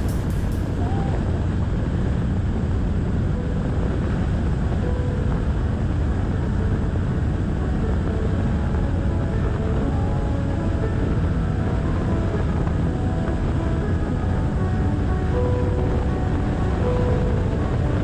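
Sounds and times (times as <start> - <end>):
low engine drone: 0.0 - 18.0
wind rush on microphone: 0.0 - 18.0.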